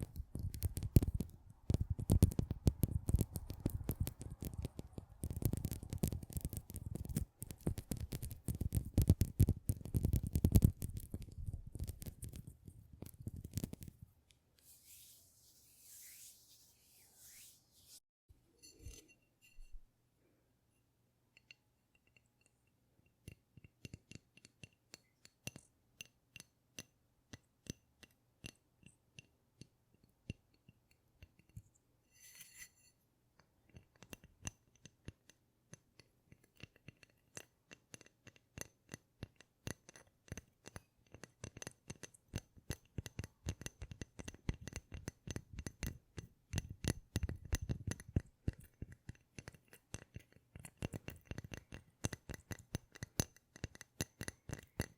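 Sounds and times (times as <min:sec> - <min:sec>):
tapping and clicking on hard objects: 0:00.0 - 0:13.9, 0:36.4 - 0:54.9
scratchy rustle: 0:14.6 - 0:18.0.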